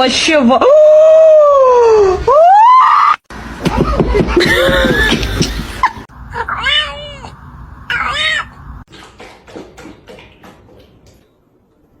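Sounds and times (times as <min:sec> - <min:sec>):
cat meowing: 0:06.4 - 0:08.6.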